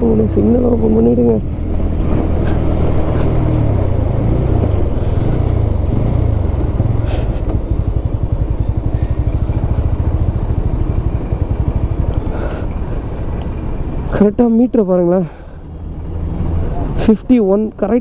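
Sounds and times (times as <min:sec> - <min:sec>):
motorcycle engine slowing and idling: 0:00.0 - 0:18.0.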